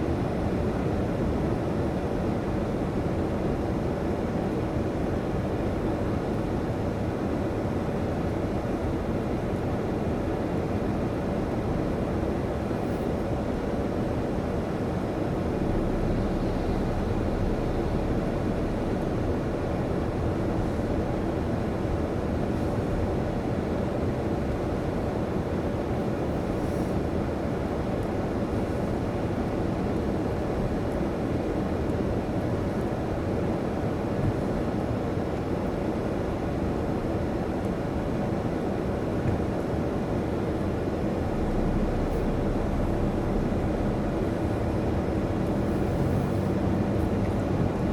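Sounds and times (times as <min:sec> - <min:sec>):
faint constant hum: 0:00.0 - 0:47.9
low mechanical rumble: 0:11.4 - 0:32.9, 0:37.9 - 0:47.9.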